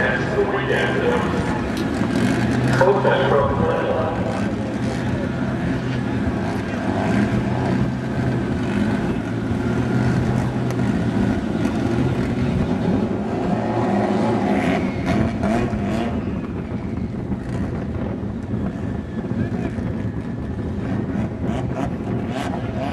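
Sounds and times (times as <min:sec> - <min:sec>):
car engine running: 0:00.0 - 0:16.0
track noise: 0:00.0 - 0:22.9.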